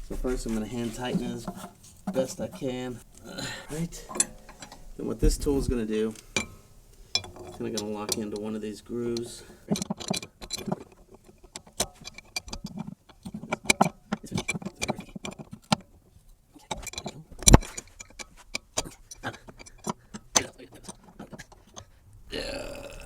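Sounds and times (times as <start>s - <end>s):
spanner clinking on metal: 1.1s - 15.8s.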